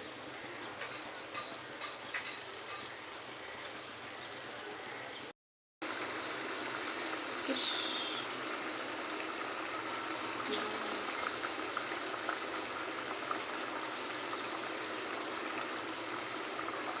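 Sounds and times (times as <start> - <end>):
curry bubbling in a pan: 5.8 - 17.0.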